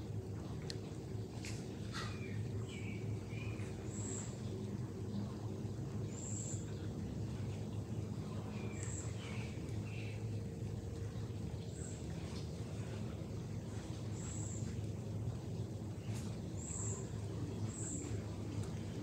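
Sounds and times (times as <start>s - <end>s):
low hum: 0.0s - 19.0s
small birds chirping: 8.4s - 10.2s, 16.0s - 18.2s.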